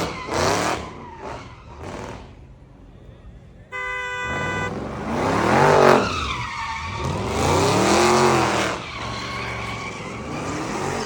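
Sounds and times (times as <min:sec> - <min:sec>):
tires squealing: 0:00.0 - 0:03.2, 0:03.8 - 0:11.0
car engine revving: 0:04.2 - 0:11.0.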